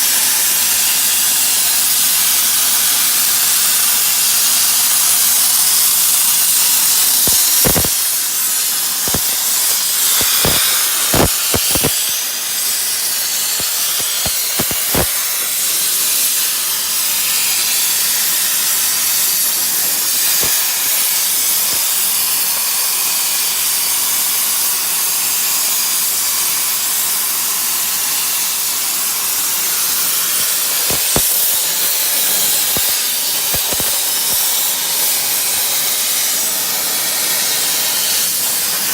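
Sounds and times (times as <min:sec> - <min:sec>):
plasma torch hissing: 0:00.2 - 0:23.0, 0:28.2 - 0:38.9
sharp clicks: 0:06.9 - 0:08.0, 0:09.0 - 0:12.0, 0:13.6 - 0:15.2, 0:30.8 - 0:34.6.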